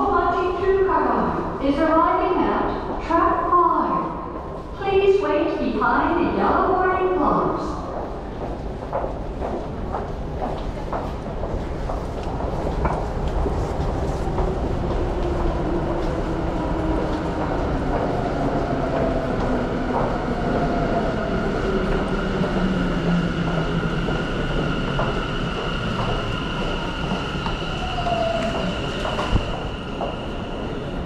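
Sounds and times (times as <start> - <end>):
high squeal: 26.8 - 30.8.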